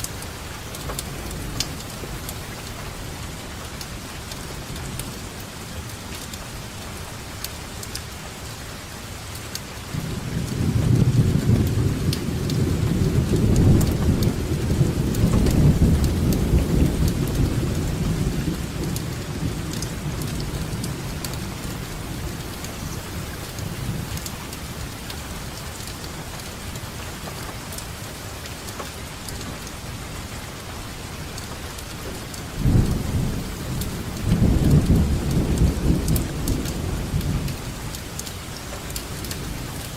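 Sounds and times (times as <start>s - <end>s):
steady rain: 0.0s - 39.9s
thunder rumbling: 10.0s - 25.7s, 32.1s - 38.2s.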